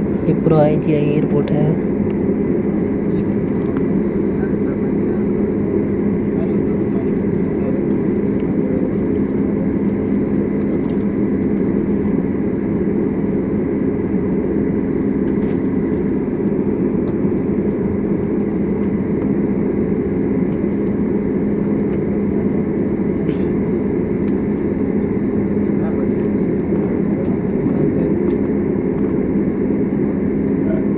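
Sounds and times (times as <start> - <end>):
jet engines idling drone: 0.0 - 30.9.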